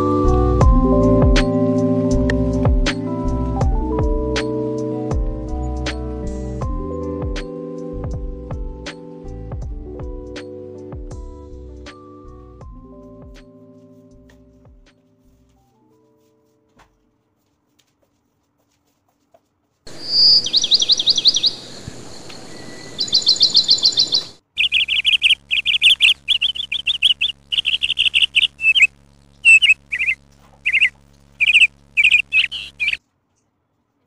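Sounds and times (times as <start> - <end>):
high bird trilling: 19.9 - 33.0
whistled bird chirps: 20.0 - 33.0.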